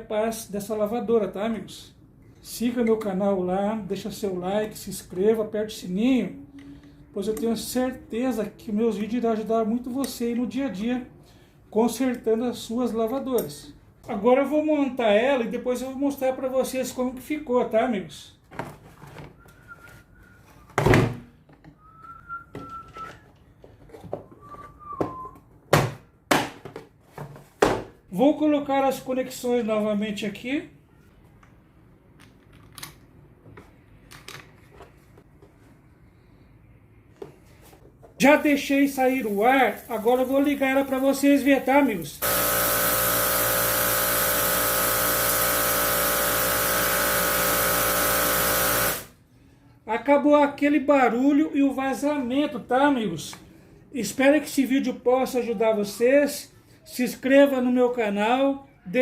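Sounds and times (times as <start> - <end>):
person whistling: 19.4 - 20.7, 21.7 - 23.3, 24.3 - 25.5
pressure washer running: 38.4 - 49.1.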